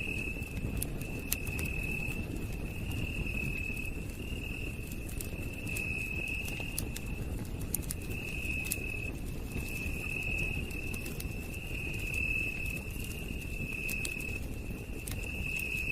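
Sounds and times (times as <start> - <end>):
campfire crackling: 0.0 - 15.9.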